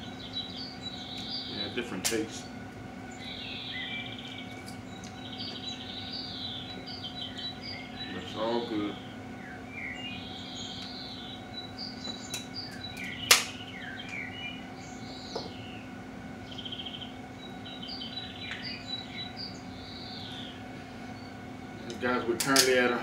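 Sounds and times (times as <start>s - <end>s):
birds chirping and whistling: 0.0s - 23.0s
steady low hum: 0.0s - 23.0s
sharp crack: 2.0s - 2.4s, 13.2s - 13.6s.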